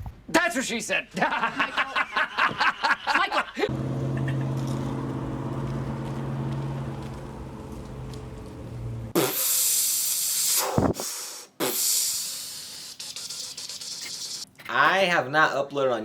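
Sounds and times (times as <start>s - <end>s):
low mechanical hum: 3.7s - 9.2s
loud hiss: 9.2s - 13.4s.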